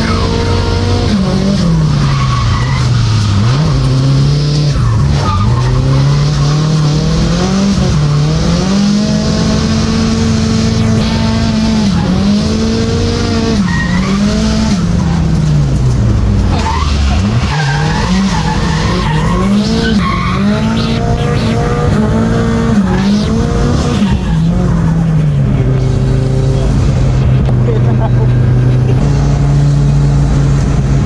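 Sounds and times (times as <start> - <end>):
tyres squealing: 0.0 - 9.4, 10.7 - 25.8
car engine revving: 0.0 - 31.0.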